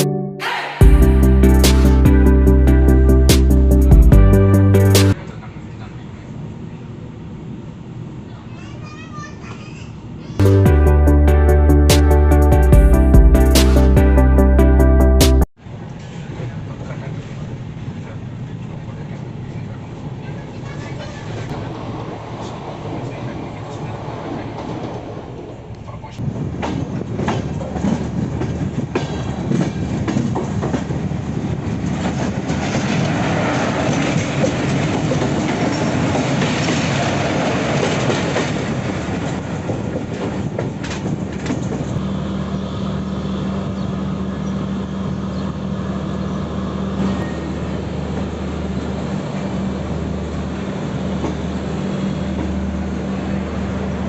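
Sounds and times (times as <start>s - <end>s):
train wheels clattering: 26.2s - 42.0s.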